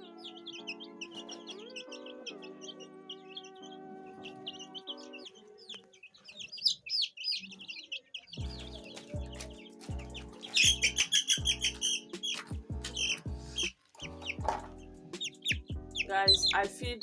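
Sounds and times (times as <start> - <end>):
young chickens peeping and clucking: 0.0 - 16.7
background music with bass beat: 8.4 - 17.0.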